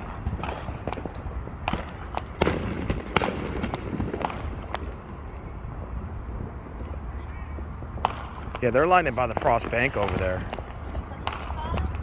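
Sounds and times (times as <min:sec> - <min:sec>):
fireworks popping and banging: 0:00.0 - 0:05.3.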